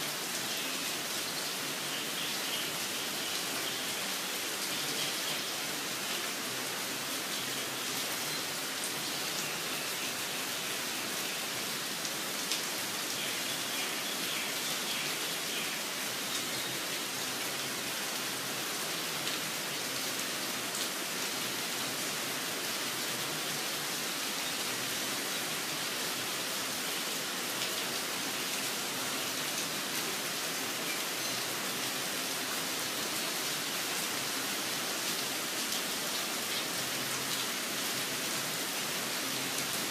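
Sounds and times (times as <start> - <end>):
steady rain falling: 0.0 - 39.9
faint bird chirps: 30.8 - 31.6.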